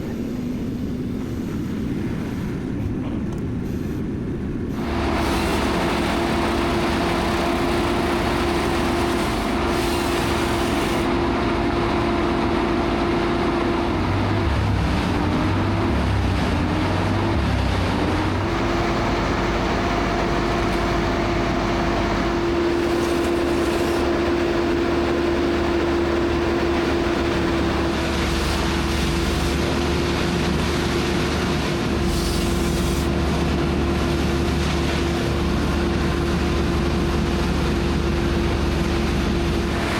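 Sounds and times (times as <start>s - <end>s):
power equipment engine running: 0.0s - 39.9s.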